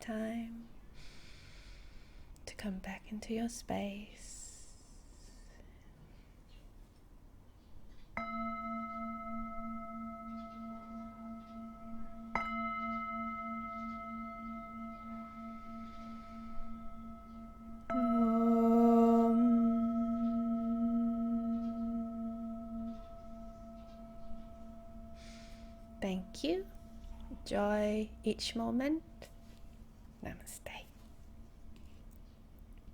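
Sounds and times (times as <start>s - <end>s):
singing bowl ringing: 8.2s - 30.0s.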